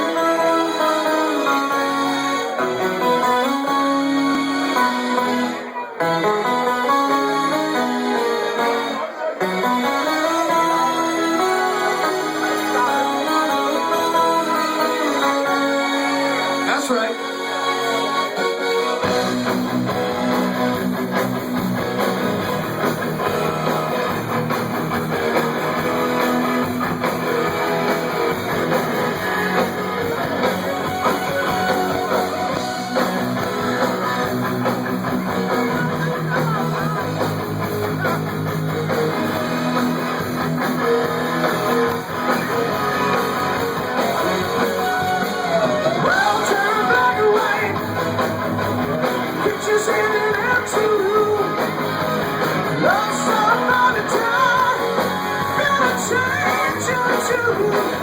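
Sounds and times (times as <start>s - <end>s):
rock band playing: 0.0s - 58.0s
strummed guitar: 0.0s - 58.0s.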